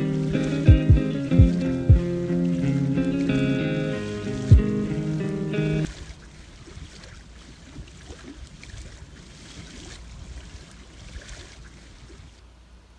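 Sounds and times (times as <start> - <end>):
music chord: 0.0 - 5.9
soft water ambience: 0.0 - 12.9.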